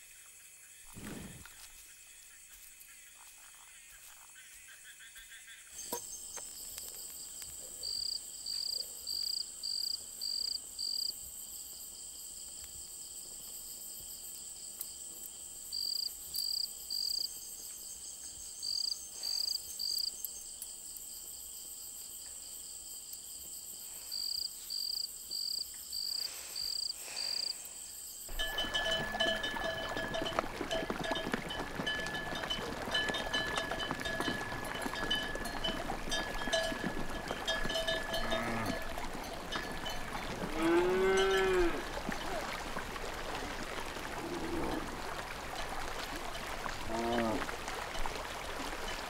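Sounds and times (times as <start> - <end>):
cricket chirping: 0.0 - 49.0
open-air background: 0.0 - 49.0
cattle bells ringing: 28.3 - 43.0.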